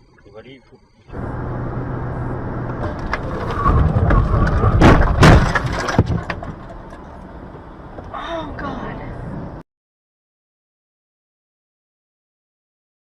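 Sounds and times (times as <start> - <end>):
vehicle noise: 0.0 - 9.6
loud collision impacts: 2.8 - 6.8.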